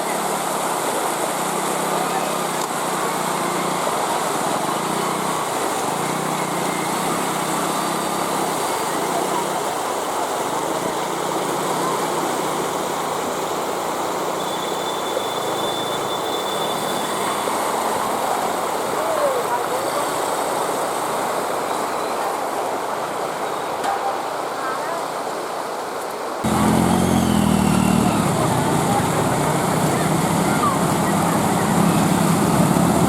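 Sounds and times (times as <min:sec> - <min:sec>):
engines running through water: 0:00.0 - 0:19.0, 0:26.4 - 0:33.0.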